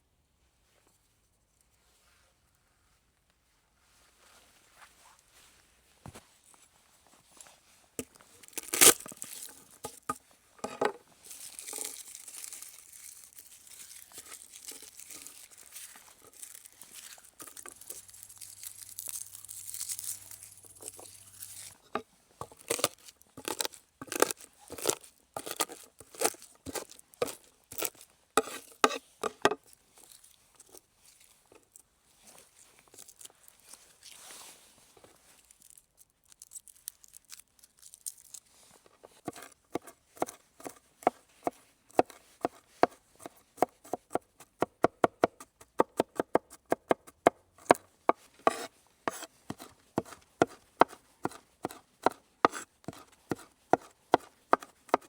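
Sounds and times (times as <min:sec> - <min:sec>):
knife chopping on cutting board: 0:26.7 - 0:29.6, 0:48.5 - 0:55.0.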